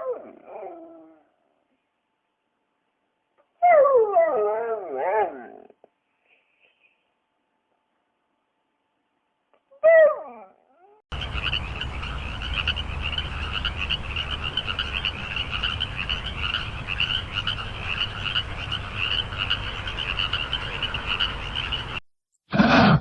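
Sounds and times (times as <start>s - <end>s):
frogs croaking: 11.1s - 22.0s.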